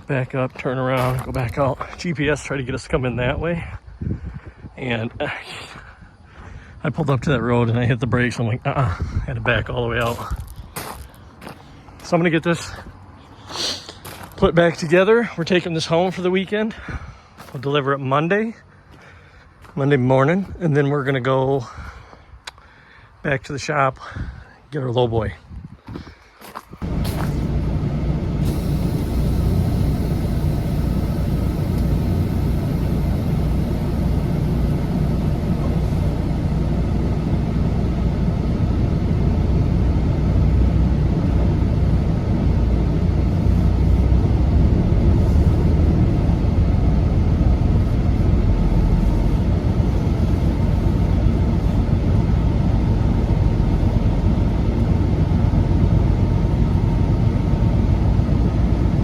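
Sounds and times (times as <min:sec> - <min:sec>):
road noise: 0:26.6 - 0:59.0
truck engine drone: 0:26.8 - 0:59.0.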